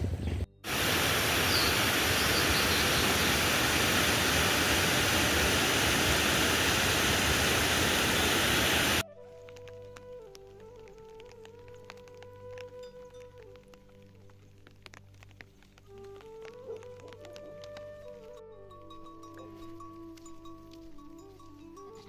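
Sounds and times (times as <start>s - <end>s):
fast-flowing water rushing: 0.7s - 9.0s.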